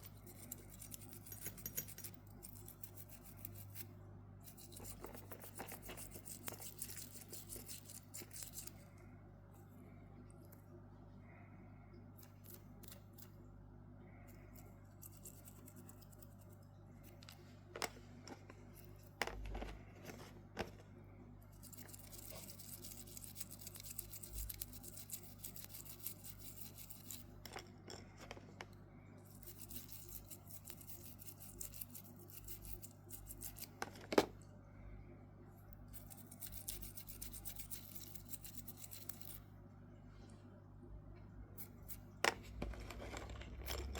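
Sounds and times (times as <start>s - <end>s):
scratchy scrubbing on watch: 2.4s - 8.9s, 21.6s - 27.3s, 29.3s - 33.8s, 35.9s - 39.4s.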